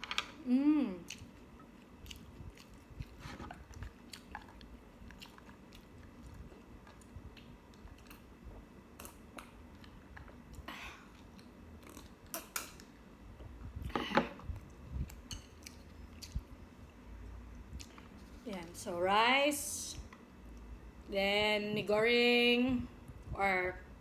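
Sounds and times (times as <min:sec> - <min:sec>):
person chewing food: 0:00.9 - 0:18.4.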